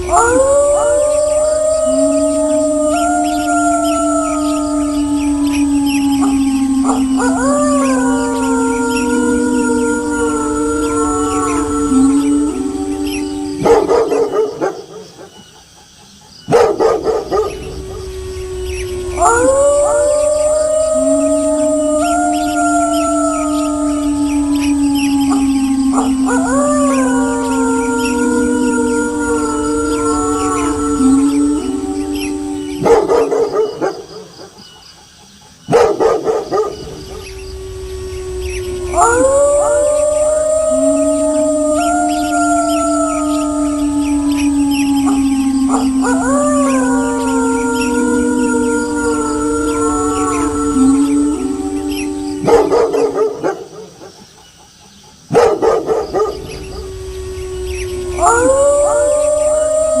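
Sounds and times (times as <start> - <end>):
wolves barking: 0.0 - 15.6, 16.5 - 34.8, 35.6 - 54.2, 55.3 - 60.0
wolves howling: 0.0 - 60.0
dog barking: 16.5 - 17.5, 35.7 - 36.8, 55.3 - 56.4.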